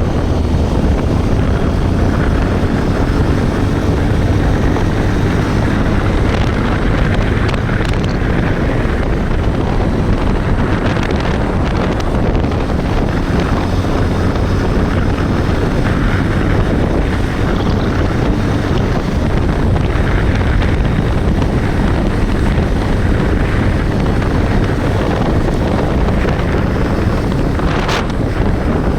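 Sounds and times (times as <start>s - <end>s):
motorcycle engine running: 0.0s - 28.9s
wind buffeting microphone: 0.0s - 28.9s.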